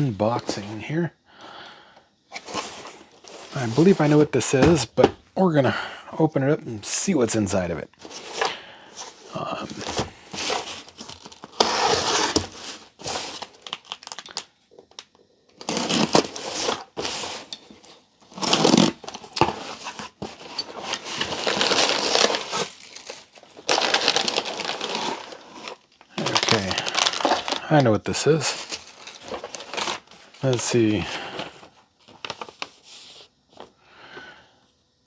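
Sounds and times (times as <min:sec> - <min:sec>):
packing material crinkling: 0:02.4 - 0:05.2, 0:08.0 - 0:15.0, 0:15.6 - 0:33.1.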